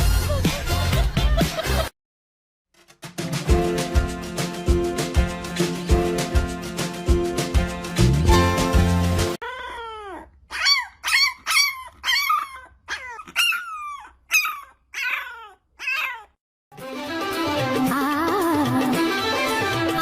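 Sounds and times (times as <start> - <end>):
dog yipping and howling: 9.4 - 16.4.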